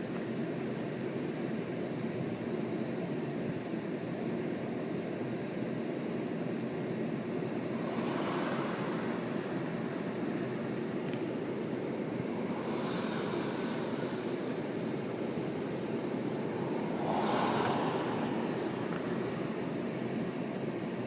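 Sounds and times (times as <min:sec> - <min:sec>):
strong wind blowing: 0:07.5 - 0:20.7.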